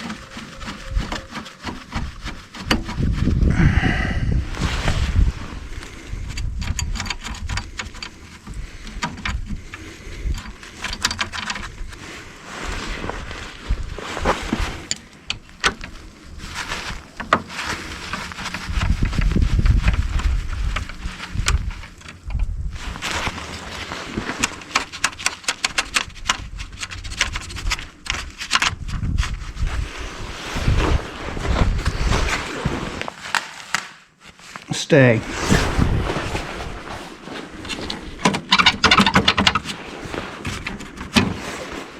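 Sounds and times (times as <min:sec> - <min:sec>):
wind rumbling on microphone: 0:00.0 - 0:33.2, 0:35.2 - 0:41.9
hand tools clicking and clattering: 0:06.3 - 0:11.7, 0:38.2 - 0:39.6.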